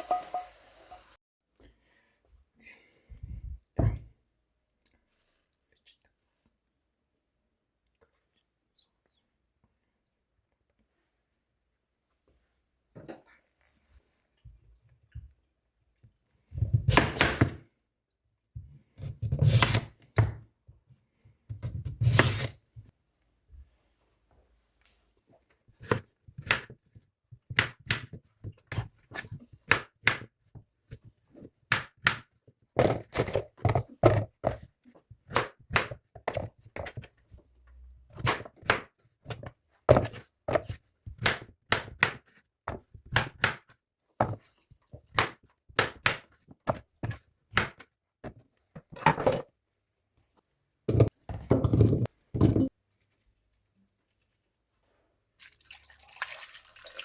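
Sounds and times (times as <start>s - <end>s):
knife chopping on cutting board: 16.7s - 17.6s, 19.0s - 20.4s, 21.6s - 22.5s, 50.9s - 52.7s.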